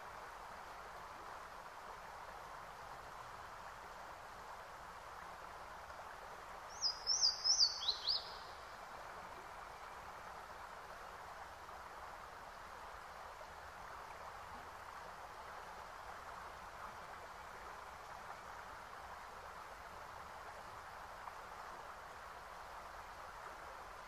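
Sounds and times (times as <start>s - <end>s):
steady background hiss: 0.0s - 24.0s
bird chirping: 6.7s - 8.6s.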